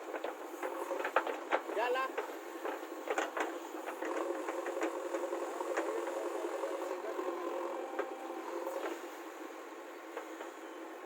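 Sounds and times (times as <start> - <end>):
diesel engine running: 2.4 - 11.0.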